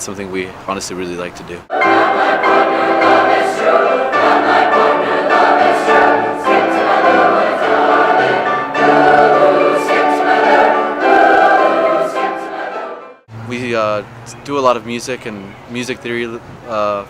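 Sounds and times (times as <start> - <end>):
choir singing sustained chords: 1.7 - 13.3.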